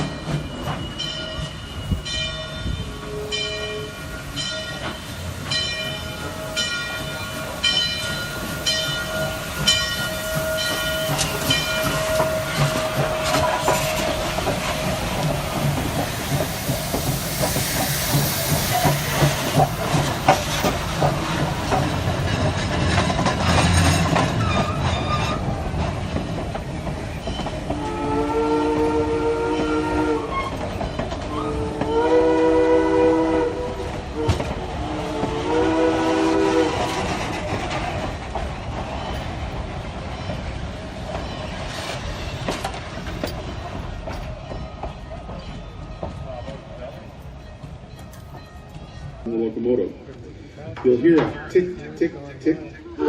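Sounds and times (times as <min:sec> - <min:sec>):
steam locomotive rushing and clanking: 0:00.0 - 0:53.0
steam whistle blasts: 0:02.9 - 0:04.0, 0:27.8 - 0:30.6, 0:31.3 - 0:36.9.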